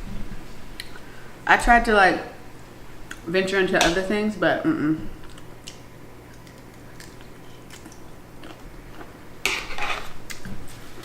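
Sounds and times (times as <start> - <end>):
chewing: 5.2 - 9.1.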